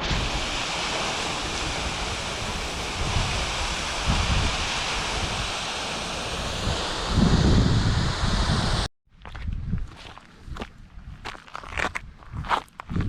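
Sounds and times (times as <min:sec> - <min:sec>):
running water rushing: 0:00.0 - 0:08.9
wind buffeting microphone: 0:00.0 - 0:13.0.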